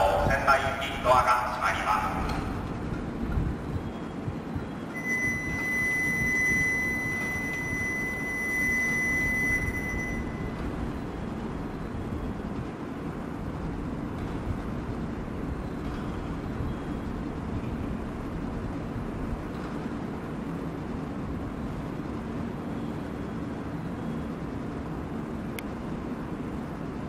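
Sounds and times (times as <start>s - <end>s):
train humming at a platform: 0.0s - 27.0s
high electronic warning tone: 3.7s - 12.6s.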